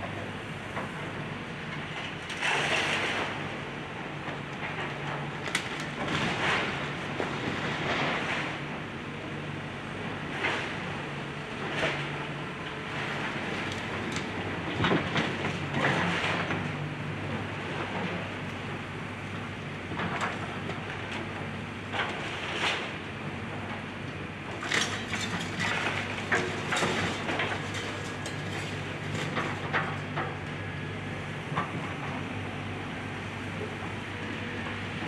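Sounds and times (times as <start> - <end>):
excavator diesel engine running: 0.0 - 35.0
clanks and crunches of debris: 1.9 - 3.4, 24.5 - 30.4.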